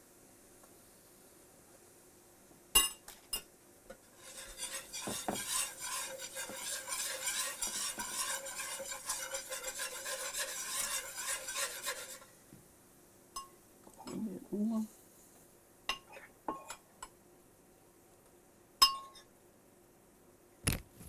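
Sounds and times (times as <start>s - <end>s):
metal clinking on pan: 2.8s - 3.5s, 4.2s - 12.2s, 13.4s - 14.2s, 15.9s - 16.8s, 18.8s - 19.3s
whisk scraping in skillet: 3.9s - 12.4s
grease sizzling: 3.9s - 12.5s.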